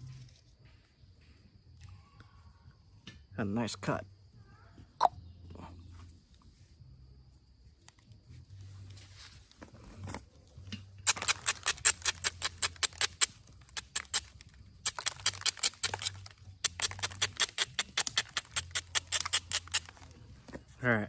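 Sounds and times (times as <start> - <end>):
stone clicking on stone: 11.0 - 20.1.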